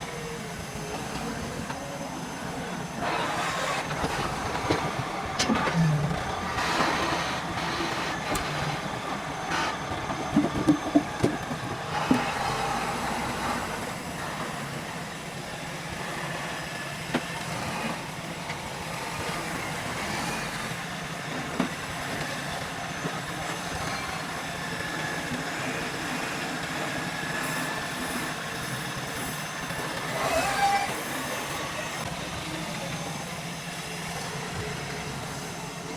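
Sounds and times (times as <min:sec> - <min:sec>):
sawmill machinery rumble: 0:00.0 - 0:35.9
knocks and clatter: 0:09.8 - 0:12.3.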